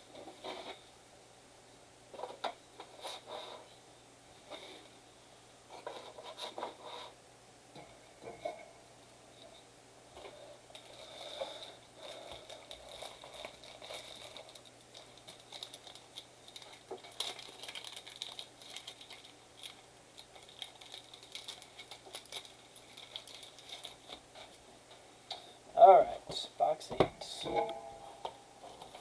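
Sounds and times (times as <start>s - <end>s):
wrappers crinkling and tearing: 10.7s - 24.6s.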